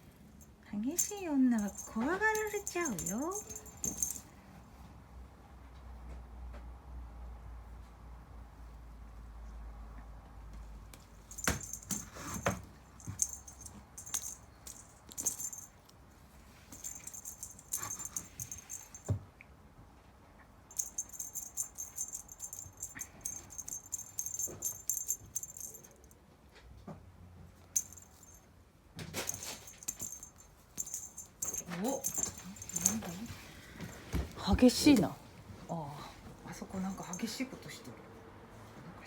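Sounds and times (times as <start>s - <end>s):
small bell jingling: 0.8s - 4.3s, 11.2s - 15.9s, 16.7s - 19.2s, 20.7s - 26.2s, 27.8s - 28.5s, 29.2s - 35.0s, 36.8s - 37.6s.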